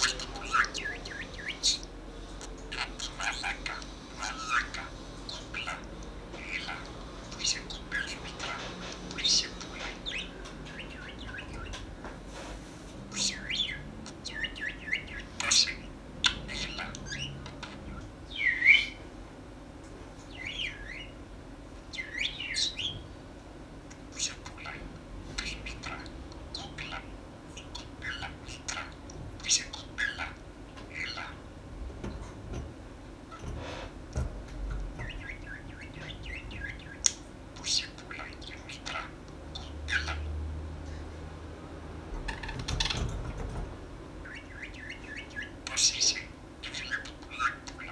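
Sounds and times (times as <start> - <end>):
parrot chirping and squawking: 0.0 - 11.9, 13.1 - 19.0, 20.3 - 21.2, 21.9 - 23.0, 24.0 - 31.5, 34.9 - 40.4, 42.2 - 43.2, 44.2 - 47.9.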